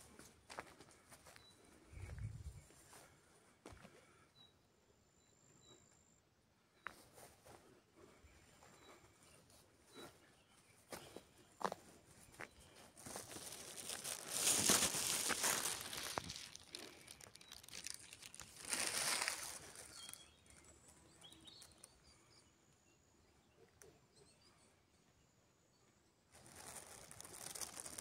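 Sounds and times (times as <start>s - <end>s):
rustling crinkling: 12.8s - 21.8s, 26.3s - 28.0s.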